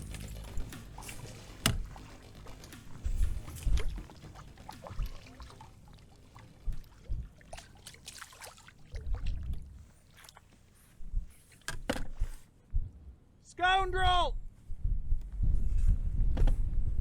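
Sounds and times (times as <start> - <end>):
gear knocking against hull: 0.0 - 5.9
water splashing around kayak: 0.0 - 12.3
wind gusts on microphone: 14.7 - 17.0.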